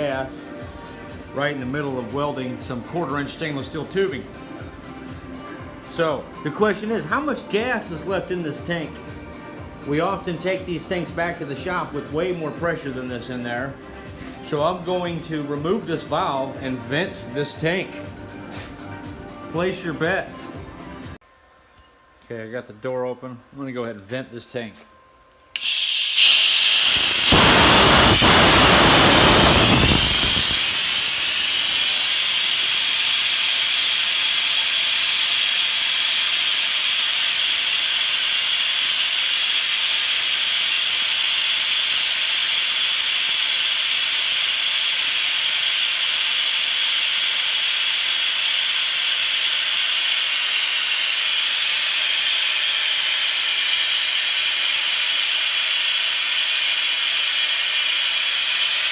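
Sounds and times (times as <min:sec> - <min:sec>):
gas hissing from cylinder valve: 0:25.6 - 0:58.9.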